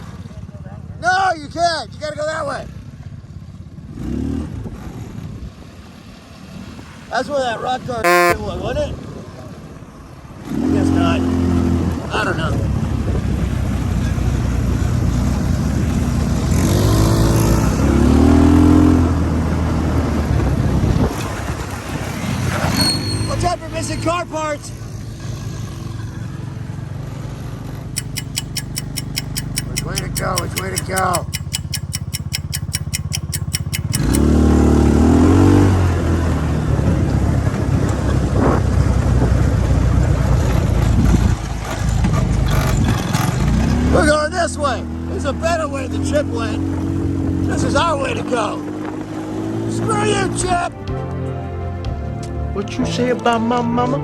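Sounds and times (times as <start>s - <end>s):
go-kart engine revving: 2.4s - 5.3s, 10.4s - 50.6s.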